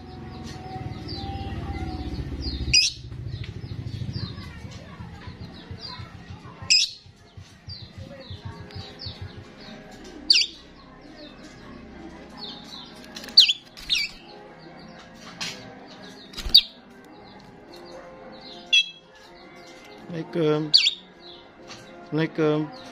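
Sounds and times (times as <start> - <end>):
soft chirping: 7.7 - 11.5, 20.7 - 21.5
starling shrill calls: 20.7 - 21.0.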